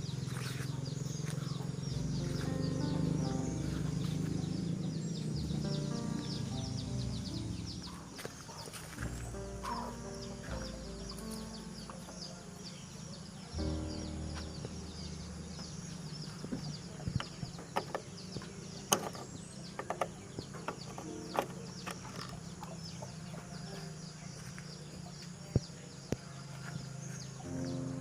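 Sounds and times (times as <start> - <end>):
steady low hum: 0.0 - 19.6
birds chirping: 0.0 - 28.0.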